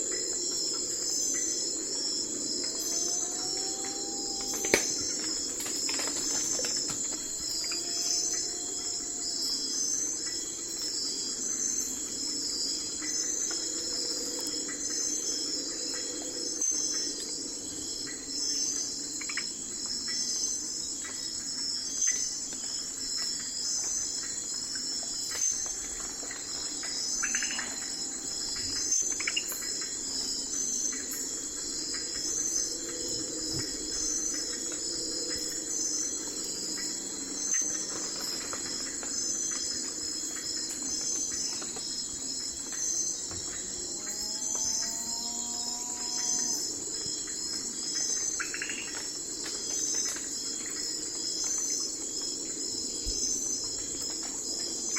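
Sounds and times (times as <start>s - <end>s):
crickets and insects chirping: 0.0s - 54.9s.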